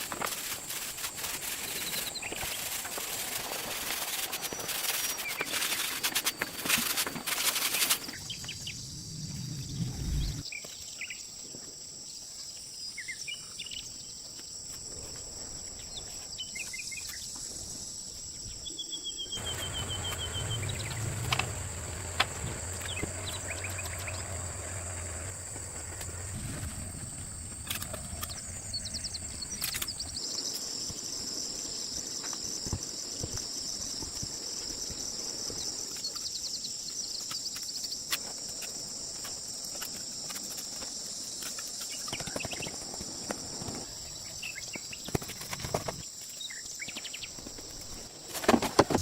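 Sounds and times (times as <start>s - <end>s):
high insect drone: 0.0s - 49.0s
birds chirping: 18.4s - 27.0s.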